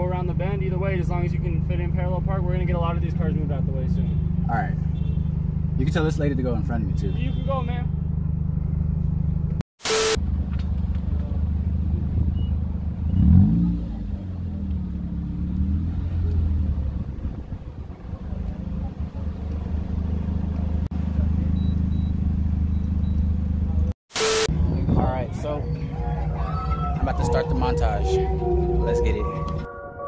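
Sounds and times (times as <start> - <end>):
short sharp burst: 9.8 - 10.2, 24.1 - 24.5
car engine idling: 10.2 - 23.9.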